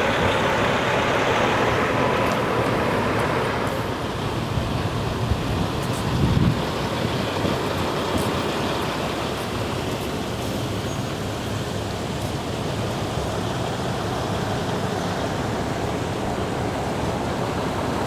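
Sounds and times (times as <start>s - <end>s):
fast-flowing river water rushing: 0.0s - 5.3s.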